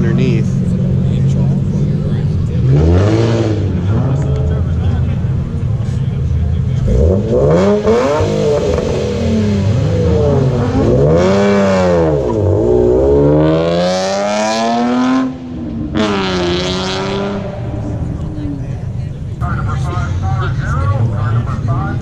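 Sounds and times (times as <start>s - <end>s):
car engine revving hard: 0.0s - 5.3s, 6.6s - 18.4s.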